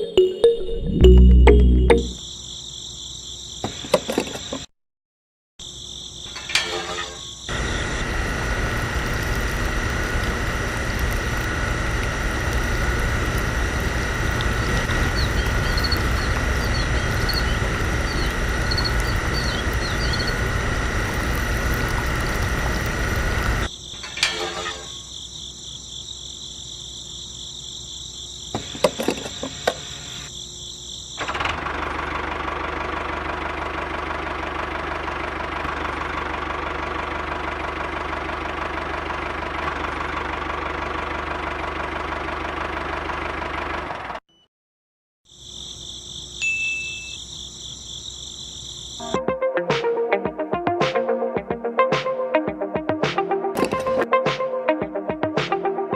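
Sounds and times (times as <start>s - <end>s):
small engine running: 7.5s - 23.7s, 28.6s - 30.3s, 31.2s - 44.2s.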